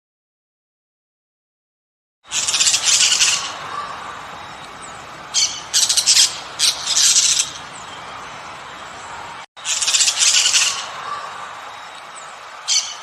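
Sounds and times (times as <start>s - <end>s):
bird squawking harshly: 2.3s - 4.0s, 5.4s - 7.6s.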